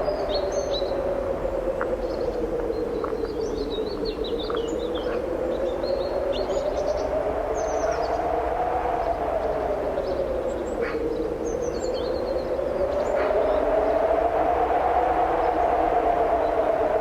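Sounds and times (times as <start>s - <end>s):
songbirds chirping: 0.0s - 17.0s
strong wind through trees: 0.0s - 17.0s.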